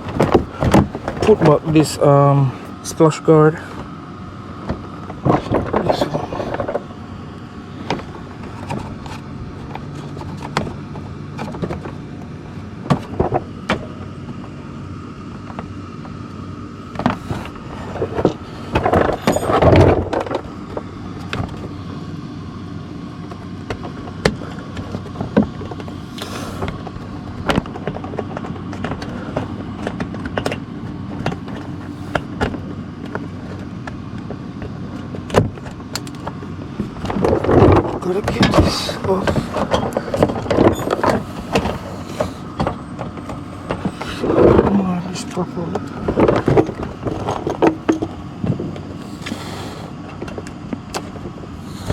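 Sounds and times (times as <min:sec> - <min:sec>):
steady low hum: 0:00.0 - 0:51.9
plastic scraping rustle: 0:36.2 - 0:51.9.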